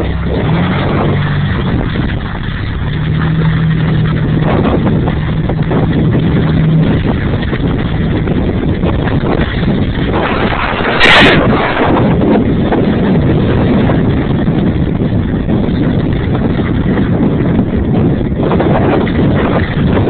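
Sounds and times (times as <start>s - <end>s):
truck engine under load: 0.0s - 18.5s
knocks and rattles from rough ride: 0.0s - 20.0s.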